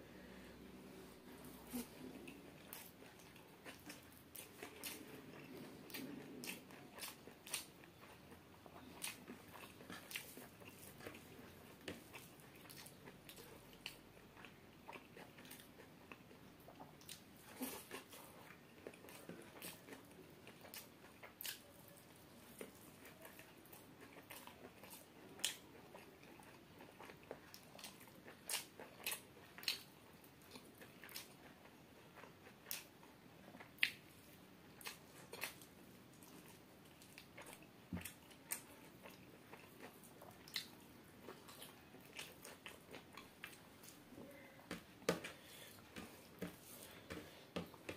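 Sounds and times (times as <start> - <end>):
chewing food: 0.9 - 47.9.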